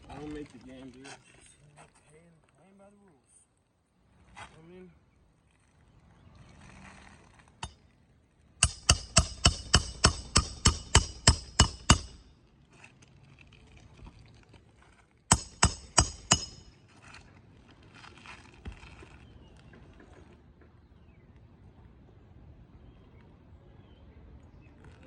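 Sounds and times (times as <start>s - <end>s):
hammer striking roofing nails: 8.6s - 12.2s, 15.3s - 16.8s.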